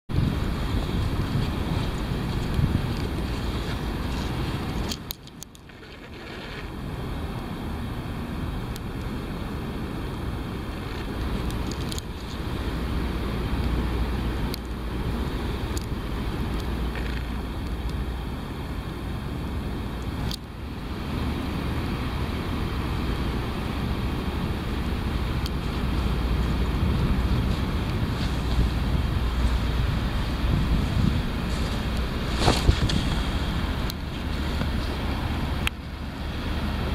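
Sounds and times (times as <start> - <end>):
noisy hiss: 0.1 - 36.9
wind rumbling on microphone: 0.1 - 36.9
brief rustle: 31.5 - 33.4.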